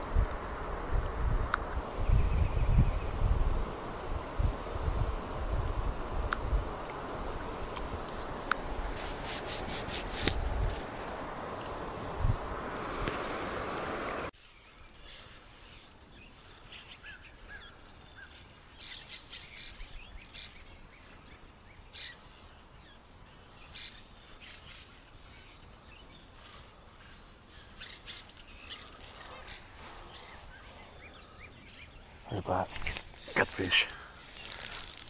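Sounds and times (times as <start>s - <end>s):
songbirds chirping: 1.5s - 35.0s
rubbing noise on microphone: 8.1s - 11.2s, 29.0s - 31.1s.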